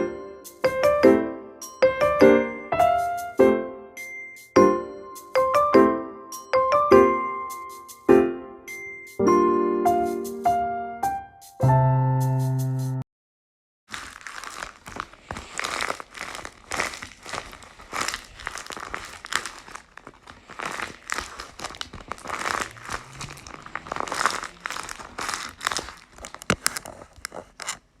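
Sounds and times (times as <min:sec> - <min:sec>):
paper squishy crinkling: 0:13.9 - 0:28.0.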